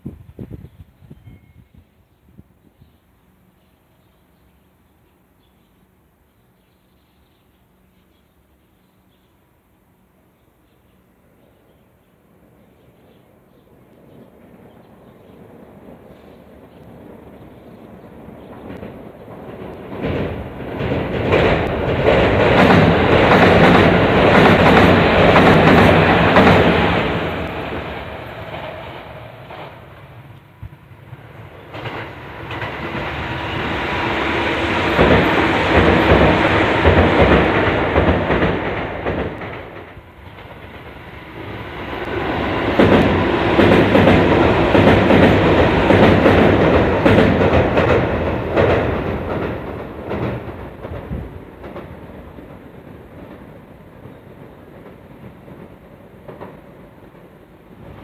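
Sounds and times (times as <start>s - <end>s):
train wheels clattering: 17.7s - 58.0s.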